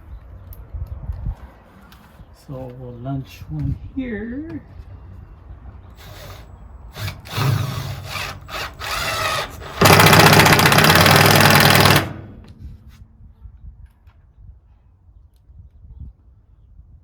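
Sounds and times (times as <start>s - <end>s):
power drill driving a screw into wood: 6.0s - 12.4s.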